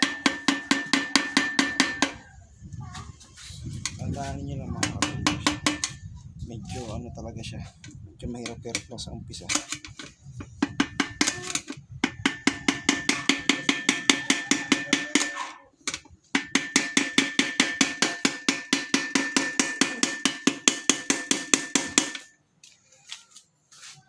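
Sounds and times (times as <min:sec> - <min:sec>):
rapid metal-on-metal tapping: 0:00.0 - 0:02.3, 0:04.7 - 0:06.0, 0:09.5 - 0:22.4.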